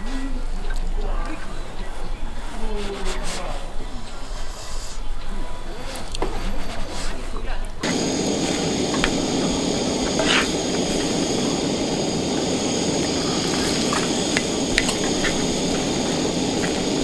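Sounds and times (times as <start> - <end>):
food sizzling in a pan: 7.8 - 17.0
utensil clicking against pan: 7.8 - 17.0.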